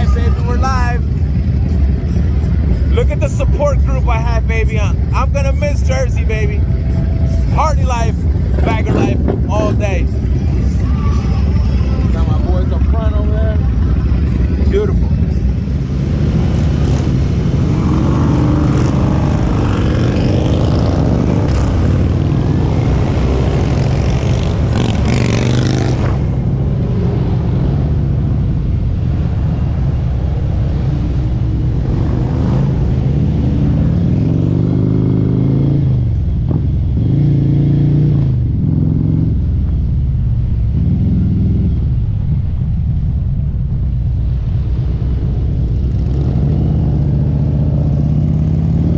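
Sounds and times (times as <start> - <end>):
motorcycle engine and exhaust: 0.0 - 48.9.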